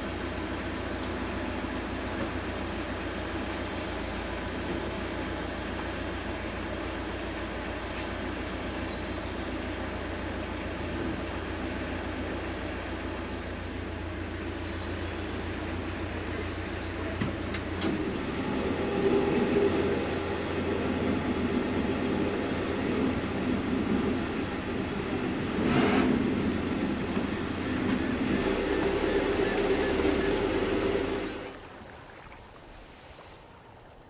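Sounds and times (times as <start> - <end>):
engine running: 26.8 - 34.0.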